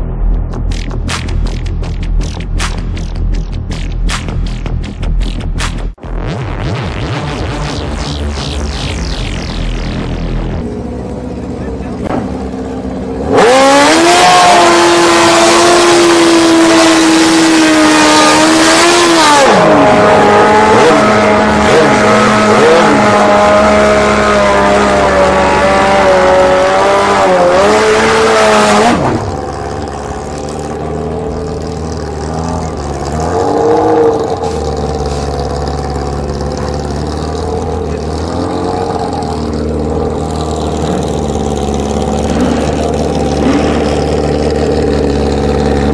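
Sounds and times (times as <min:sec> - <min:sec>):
motorcycle engines revving high: 0:00.0 - 0:45.9
motorcycle engines idling: 0:09.8 - 0:13.2, 0:29.3 - 0:33.3, 0:34.2 - 0:45.9.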